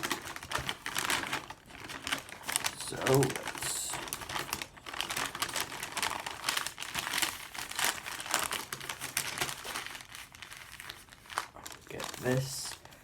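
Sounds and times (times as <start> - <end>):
paper bag crumpling: 0.0 - 13.0.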